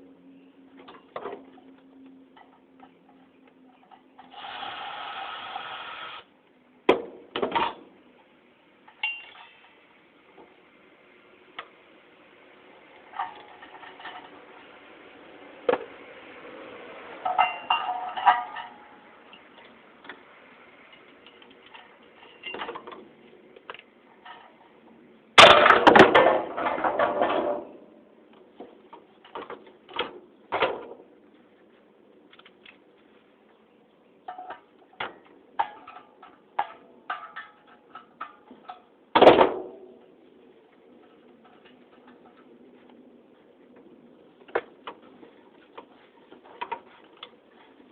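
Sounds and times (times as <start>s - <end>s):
metal parts and tools clinking: 8.8s - 9.8s, 13.0s - 14.7s, 17.2s - 19.8s, 20.9s - 23.0s, 34.3s - 38.9s
loud metal clatter: 25.4s - 27.8s.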